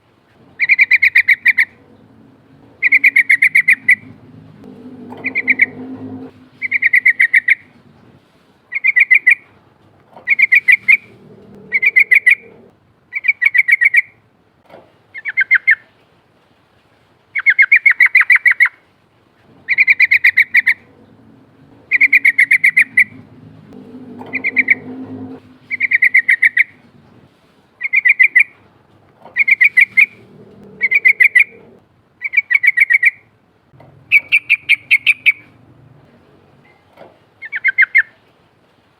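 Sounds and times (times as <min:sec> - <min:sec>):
bird singing bubbly phrases: 0:00.6 - 0:04.1, 0:06.6 - 0:07.7, 0:10.3 - 0:14.1, 0:21.7 - 0:23.2, 0:25.6 - 0:26.8, 0:29.4 - 0:33.2.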